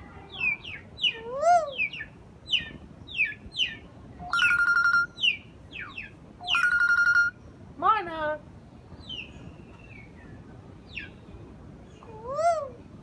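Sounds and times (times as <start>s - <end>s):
trilled ringing call: 4.3s - 5.4s, 6.4s - 7.4s
myna bird whistling: 4.3s - 7.4s.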